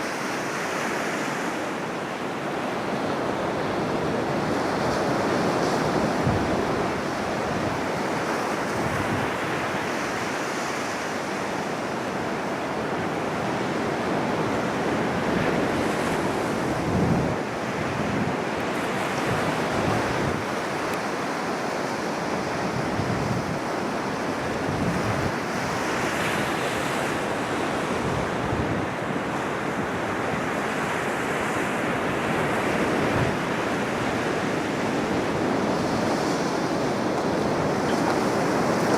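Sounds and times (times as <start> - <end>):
ocean surf breaking: 0.0 - 38.9
wind buffeting microphone: 3.0 - 10.3, 12.6 - 38.9.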